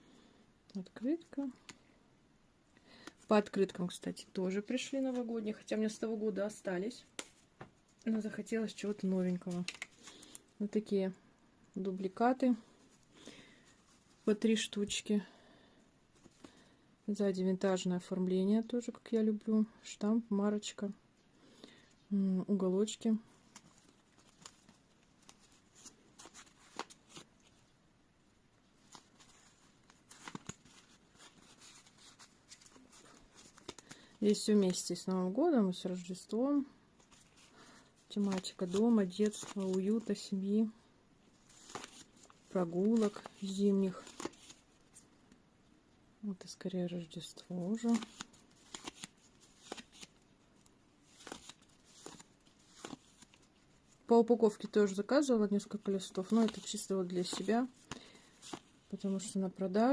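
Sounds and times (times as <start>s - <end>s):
paper postcards rustling and clicking: 9.3s - 10.5s, 23.4s - 27.6s, 28.7s - 34.9s, 37.0s - 40.2s, 41.4s - 45.1s, 47.4s - 54.8s, 55.6s - 59.4s.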